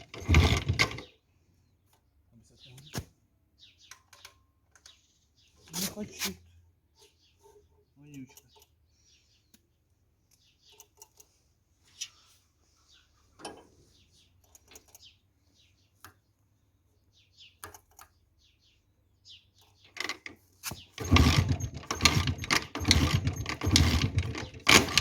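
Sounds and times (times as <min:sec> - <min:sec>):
two-stroke motorcycle engine running: 0:00.0 - 0:01.0, 0:20.9 - 0:25.0.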